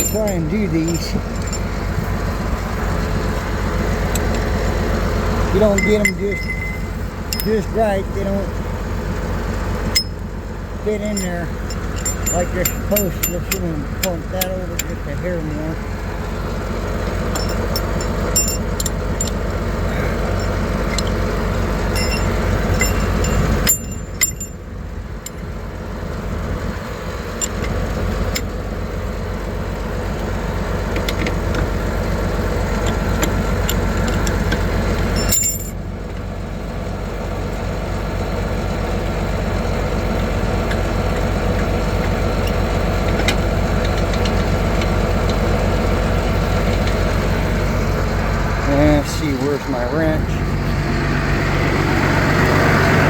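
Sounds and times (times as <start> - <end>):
light metallic clinks: 0.0 - 1.8, 5.6 - 7.8, 10.9 - 15.7, 17.2 - 19.4, 21.9 - 24.6, 35.1 - 35.8
vehicle engine idling: 0.0 - 53.0.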